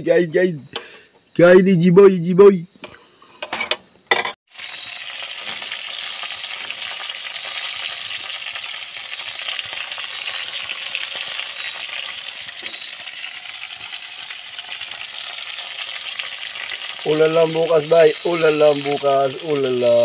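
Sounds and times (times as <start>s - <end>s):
chicken frying in hot oil: 4.5s - 20.0s.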